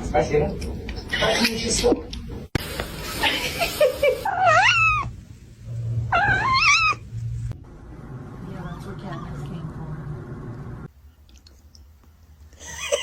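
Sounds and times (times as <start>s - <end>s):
cat meowing: 4.3s - 5.1s, 6.1s - 7.0s.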